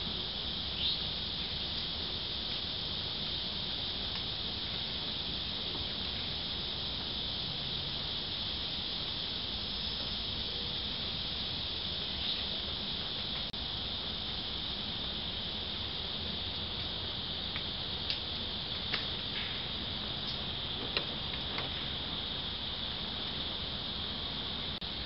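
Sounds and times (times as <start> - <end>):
insects trilling: 0.0 - 25.0
birds chirping: 0.8 - 1.6.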